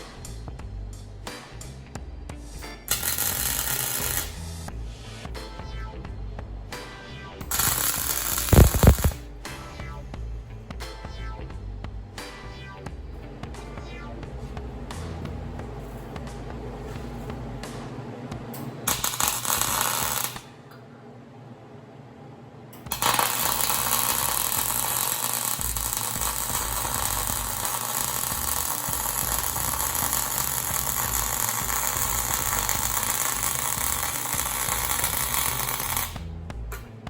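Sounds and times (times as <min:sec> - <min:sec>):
arc welding crackle: 0:02.8 - 0:04.7, 0:07.4 - 0:09.2, 0:18.9 - 0:20.5, 0:22.9 - 0:36.2.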